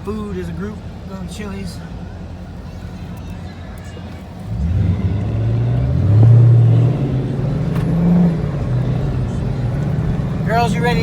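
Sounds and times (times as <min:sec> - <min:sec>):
car engine accelerating: 0:04.4 - 0:11.0.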